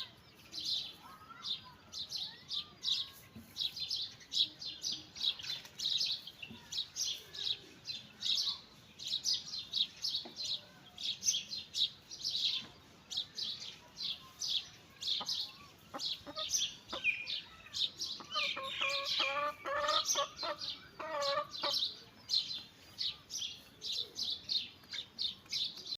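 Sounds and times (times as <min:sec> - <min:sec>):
chickens chirping: 0:00.0 - 0:25.9
chickens clucking: 0:13.8 - 0:24.2.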